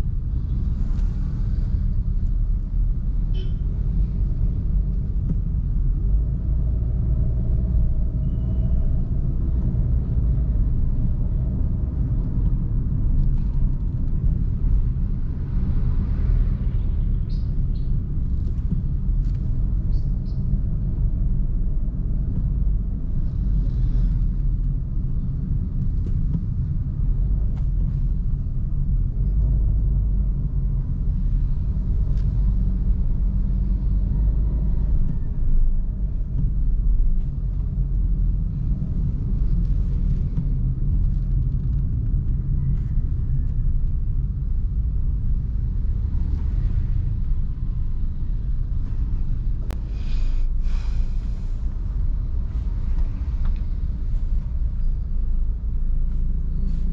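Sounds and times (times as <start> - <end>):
vehicle engine and road noise: 0.0 - 56.9.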